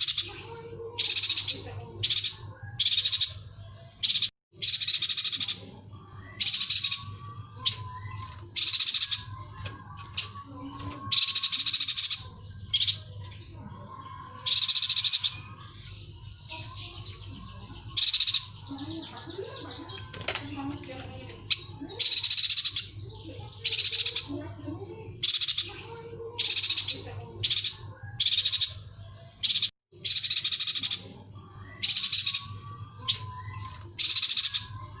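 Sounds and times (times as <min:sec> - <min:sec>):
bird trills: 0:04.0 - 0:13.3.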